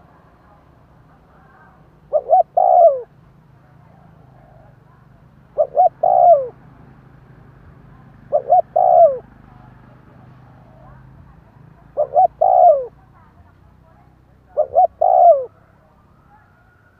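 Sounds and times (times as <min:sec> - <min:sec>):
dove cooing: 0:01.4 - 0:04.9, 0:05.5 - 0:06.6, 0:08.1 - 0:09.3, 0:11.8 - 0:13.0, 0:14.5 - 0:15.7.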